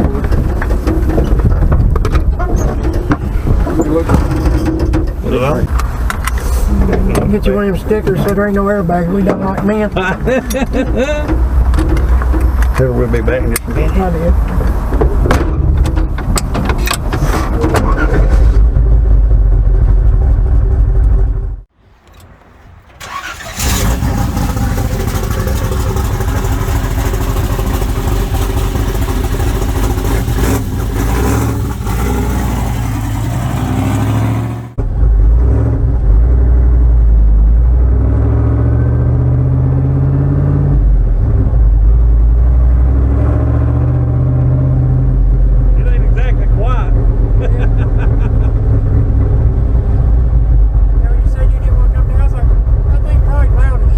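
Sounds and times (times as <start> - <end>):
truck engine pulling under throttle: 18.7 - 45.8
loud rushing: 22.3 - 35.0.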